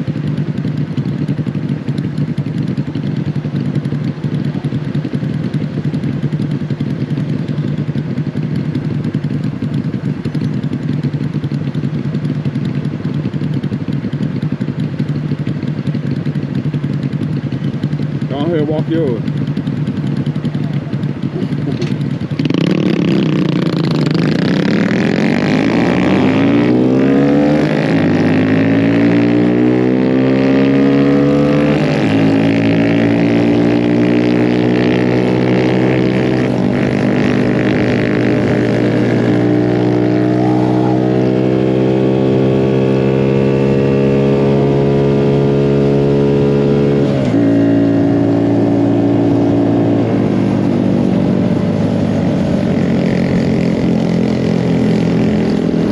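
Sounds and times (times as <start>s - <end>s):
mini bike engine accelerating: 18.3s - 55.9s.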